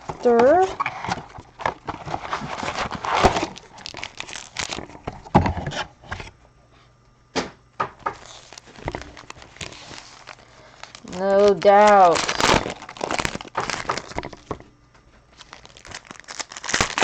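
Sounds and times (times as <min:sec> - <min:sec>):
packaging tearing: 0:00.4 - 0:05.0, 0:08.2 - 0:14.6, 0:15.3 - 0:17.0.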